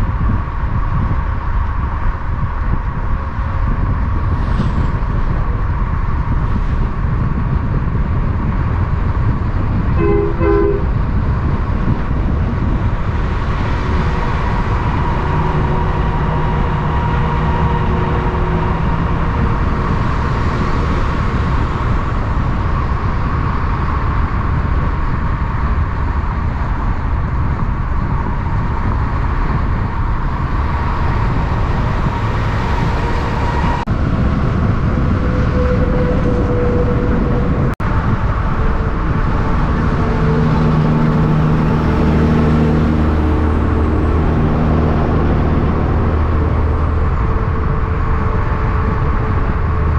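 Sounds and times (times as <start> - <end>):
heavy road traffic rumble: 0.0 - 49.9
two-pulse horn toot: 9.9 - 11.0.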